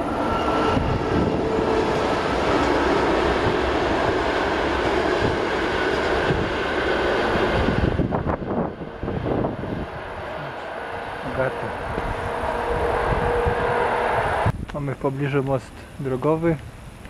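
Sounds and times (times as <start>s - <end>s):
train wheels rumbling on bridge: 0.0s - 14.7s.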